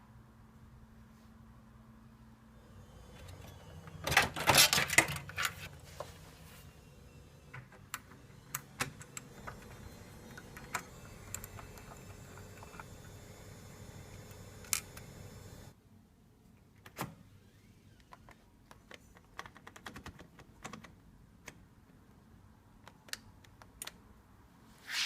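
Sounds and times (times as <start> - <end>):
faint steady hum: 0.0 - 19.3.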